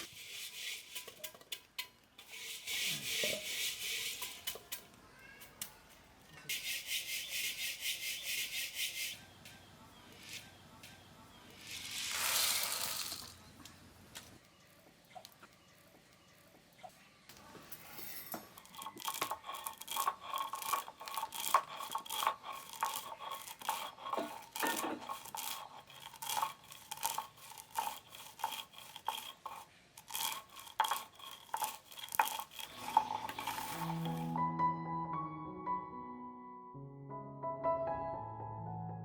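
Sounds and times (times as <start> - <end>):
utensil scraping a metal pot: 0.0 - 4.8, 6.5 - 9.2, 18.0 - 34.4.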